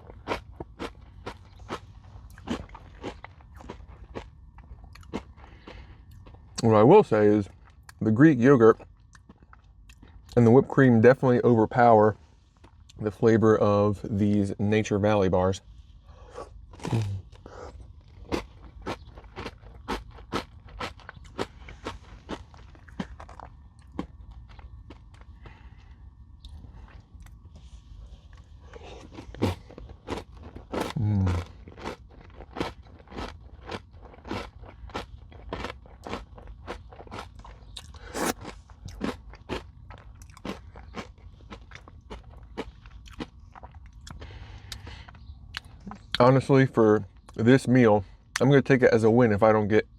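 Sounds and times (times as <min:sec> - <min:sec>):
crunchy chewing: 0:00.0 - 0:10.6, 0:12.2 - 0:13.2, 0:15.6 - 0:46.2
low voice hum: 0:13.3 - 0:17.9, 0:30.8 - 0:31.7.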